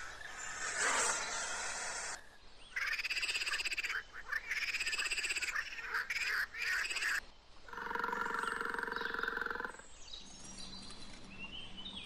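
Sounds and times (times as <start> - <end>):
hissing noise: 0.0 - 2.2
frog-like trilling calls: 7.7 - 9.8.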